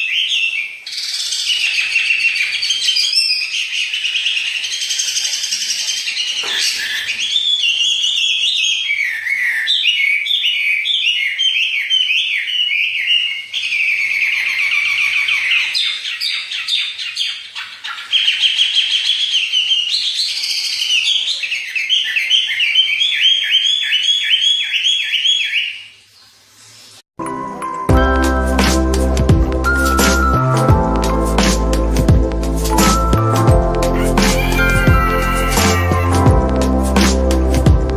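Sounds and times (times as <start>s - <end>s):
songbird singing with trills: 0.0s - 25.9s.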